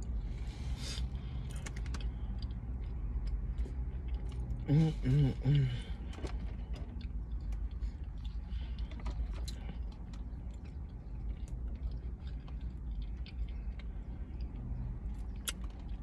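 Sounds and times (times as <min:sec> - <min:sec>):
steady low hum: 0:00.0 - 0:16.0
chewing with wet mouth clicks: 0:01.4 - 0:04.7, 0:06.8 - 0:16.0.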